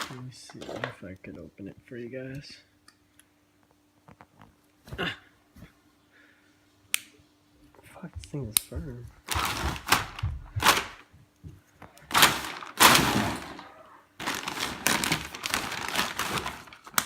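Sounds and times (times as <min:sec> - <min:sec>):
packaging rustling: 0:09.2 - 0:11.0, 0:12.0 - 0:17.0.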